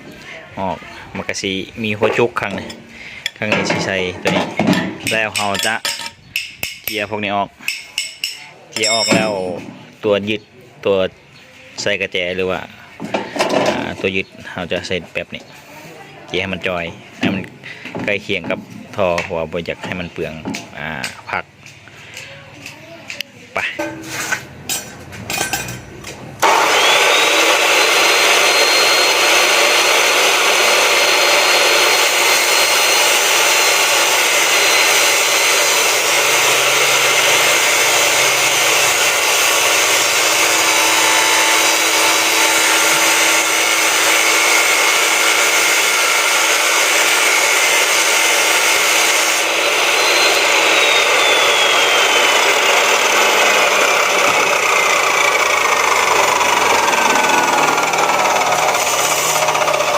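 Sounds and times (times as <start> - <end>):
angle grinder grinding metal: 1.9 - 9.8, 23.7 - 24.8, 26.4 - 59.9.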